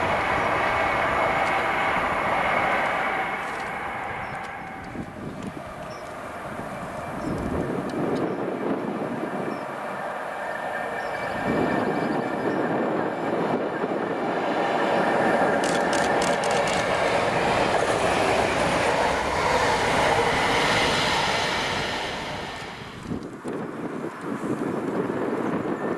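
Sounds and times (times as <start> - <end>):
train wheels clicking: 0.0 - 6.2, 14.2 - 23.3
train passing at speed: 0.0 - 23.8.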